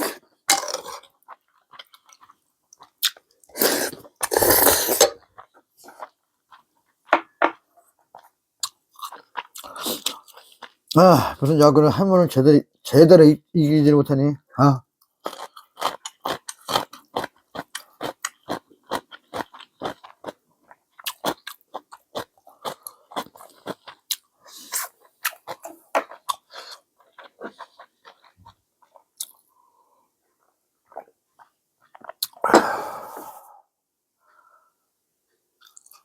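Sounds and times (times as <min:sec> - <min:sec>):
person chewing noodles: 0:00.0 - 0:07.1, 0:07.8 - 0:11.0, 0:15.2 - 0:32.5, 0:35.6 - 0:36.0
loud burst of breath: 0:32.4 - 0:34.8.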